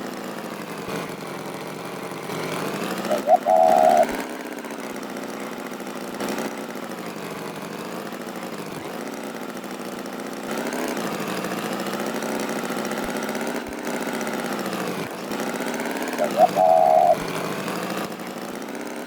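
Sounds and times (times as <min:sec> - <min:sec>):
buzzing engine-like drone: 0:00.0 - 0:19.0.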